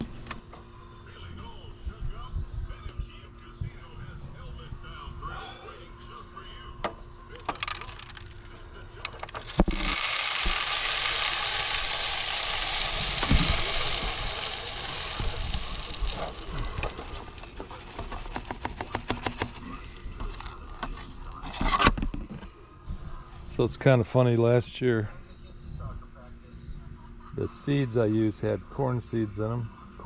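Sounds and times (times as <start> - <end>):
bird seed pouring into feeder: 7.4 - 8.3, 9.1 - 20.6
seeds ticking and clicking: 9.0 - 20.7.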